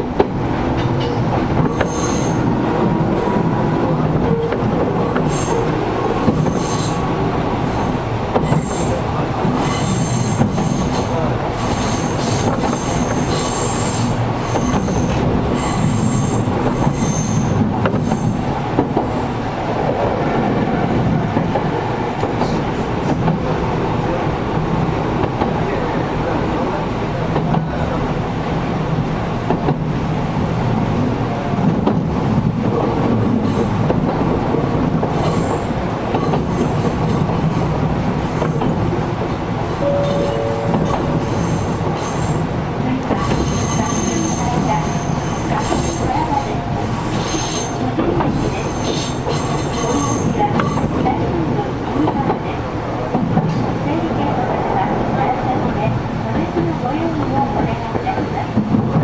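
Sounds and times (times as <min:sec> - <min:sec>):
rail-joint clicks: 0:00.0 - 0:59.0
train wheels rumbling on rail: 0:00.0 - 0:59.0
high wheel squeal: 0:01.1 - 0:02.5, 0:04.3 - 0:18.5, 0:39.7 - 0:42.5, 0:43.2 - 0:50.4, 0:53.0 - 0:57.8.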